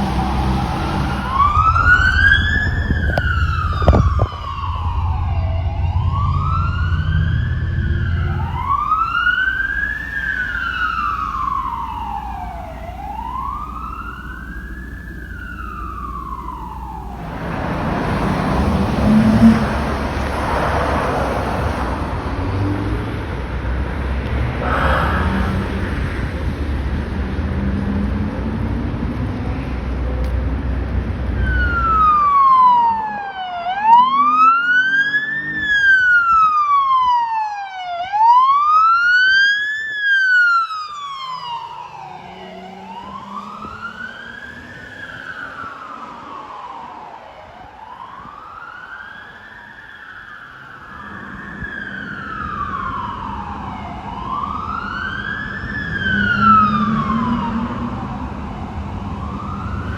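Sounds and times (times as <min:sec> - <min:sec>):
police siren wailing: 0:00.0 - 0:30.3, 0:30.9 - 0:59.9
traffic and engine rumble: 0:00.0 - 0:59.9.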